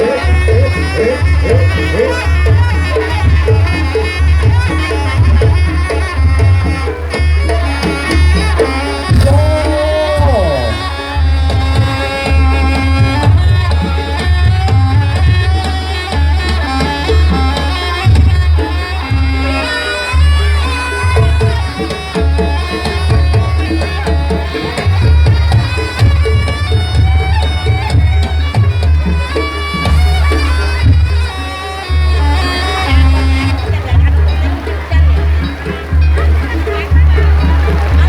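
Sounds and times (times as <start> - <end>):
low drum beats: 0.0 - 38.0
shawm playing wavering melody: 0.0 - 38.0
gong beats: 7.1 - 13.3.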